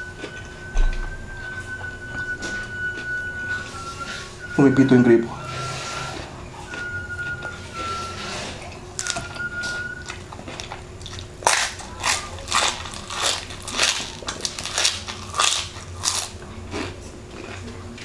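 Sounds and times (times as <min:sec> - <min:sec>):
faucet whistling tone: 0:00.0 - 0:10.2
crunching fried chicken skin: 0:09.0 - 0:18.0.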